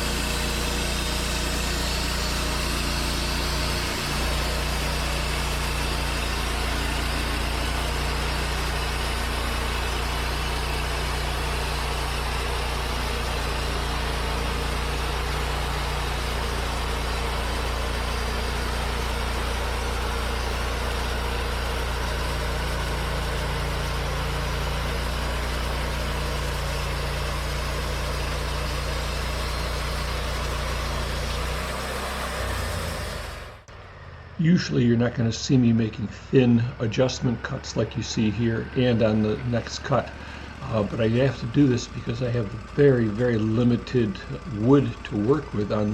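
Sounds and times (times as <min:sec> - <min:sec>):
band blade sawing wood: 0:00.0 - 0:33.7, 0:37.3 - 0:45.9
band sawmill engine under load: 0:00.0 - 0:45.9.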